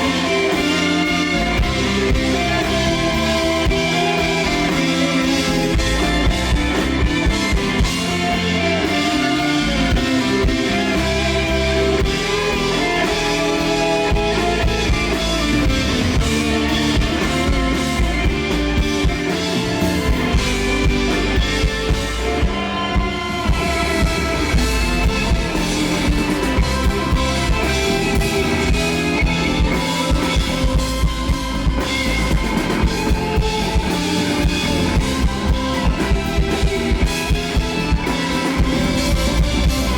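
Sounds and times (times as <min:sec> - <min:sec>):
bass: 0:00.0 - 0:39.9
drum kit beat: 0:00.0 - 0:39.9
guitars: 0:00.0 - 0:39.9.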